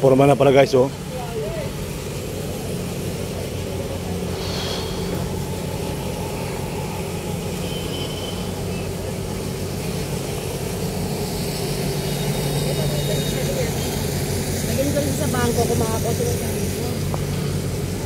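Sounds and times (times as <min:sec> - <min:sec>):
low engine hum: 0:00.0 - 0:18.0
traffic drone: 0:00.0 - 0:18.0.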